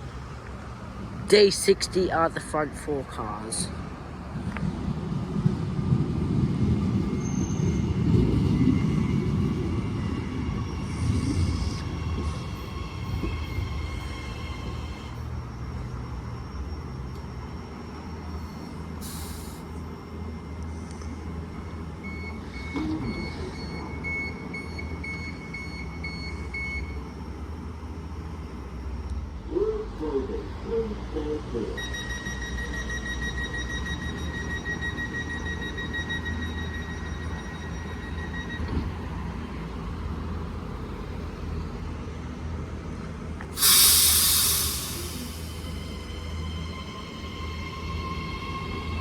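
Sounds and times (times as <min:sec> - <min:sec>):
electric train humming: 0:00.0 - 0:49.0
pneumatic brake air hiss: 0:18.4 - 0:19.8, 0:43.6 - 0:46.4.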